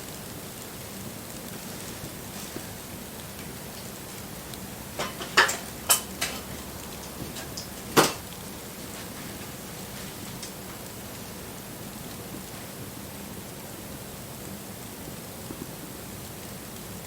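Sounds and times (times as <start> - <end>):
bonfire hissing: 0.0 - 17.0
fire cracking: 0.0 - 17.0.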